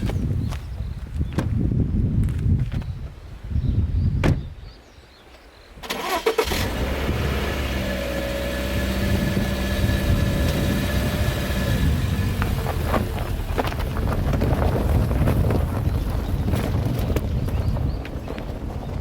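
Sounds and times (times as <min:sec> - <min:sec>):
sharp thump: 0:04.2 - 0:04.5
car engine starting and idling: 0:05.8 - 0:14.8.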